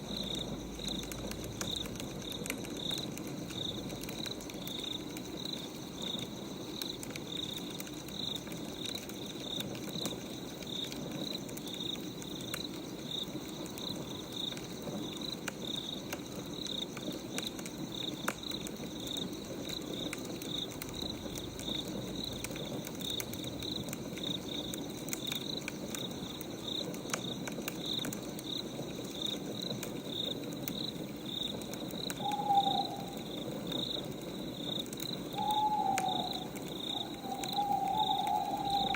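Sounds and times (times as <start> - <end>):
crickets chirping: 0.0 - 38.9
firewood crackling: 0.0 - 38.9
owl hoot: 32.1 - 33.5, 35.3 - 38.9.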